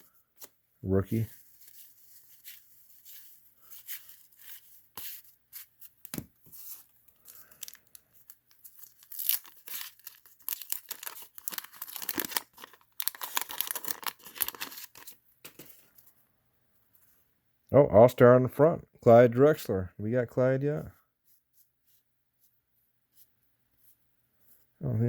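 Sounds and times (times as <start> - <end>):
card packaging crinkling and tearing: 6.1 - 15.9.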